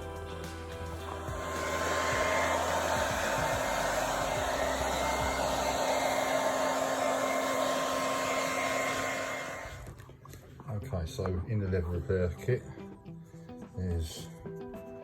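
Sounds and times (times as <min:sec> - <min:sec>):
hair dryer running: 0:00.4 - 0:10.0.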